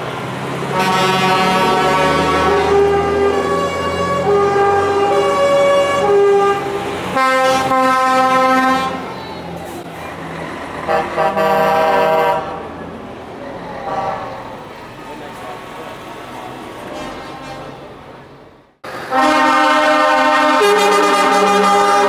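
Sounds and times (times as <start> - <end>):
lorry engines rumbling: 0.0 - 22.0
truck air horns blowing: 0.7 - 9.4, 10.8 - 12.6, 13.8 - 14.4, 16.9 - 17.9, 18.9 - 22.0.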